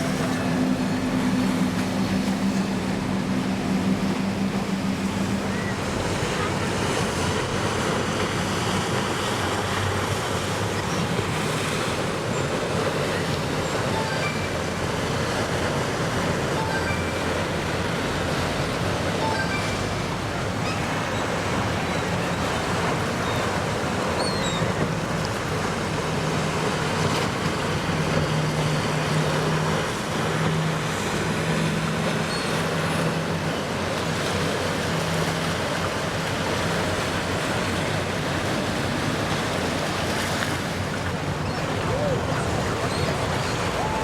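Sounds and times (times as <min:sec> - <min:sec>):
powerboat engines rumbling: 0:00.0 - 0:44.0
water wash: 0:00.0 - 0:44.0.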